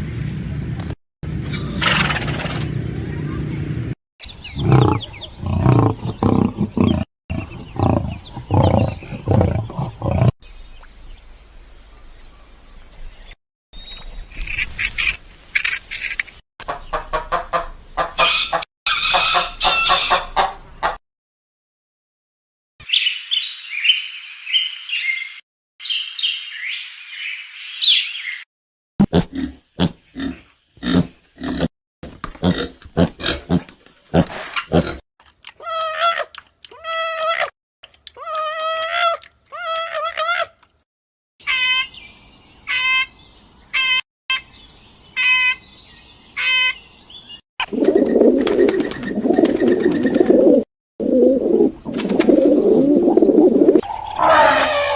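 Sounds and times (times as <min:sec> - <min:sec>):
low animal calls: 0:04.2 - 0:11.2, 0:53.7 - 0:54.9
high chirping: 0:04.2 - 0:14.2.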